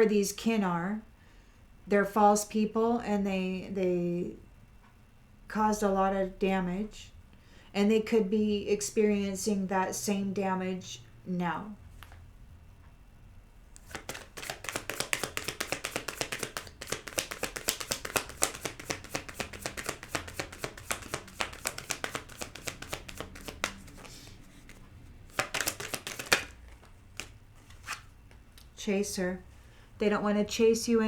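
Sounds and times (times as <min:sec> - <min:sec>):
cards being shuffled: 0:13.8 - 0:28.4.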